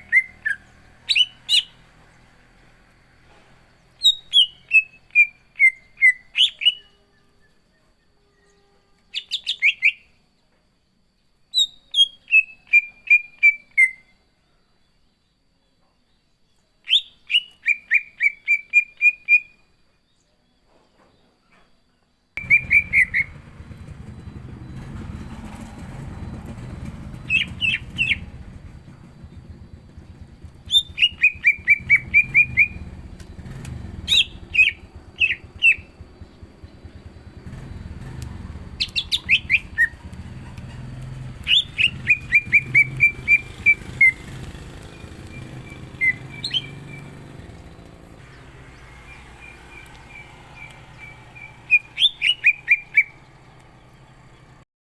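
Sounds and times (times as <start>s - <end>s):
bird rapid sharp chirping: 0.0s - 2.4s, 3.9s - 6.8s, 22.4s - 54.6s.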